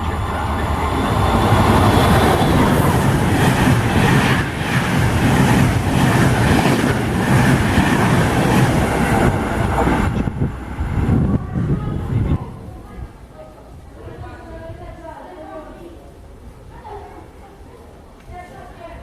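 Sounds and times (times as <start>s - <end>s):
train passing close by: 0.0s - 13.0s.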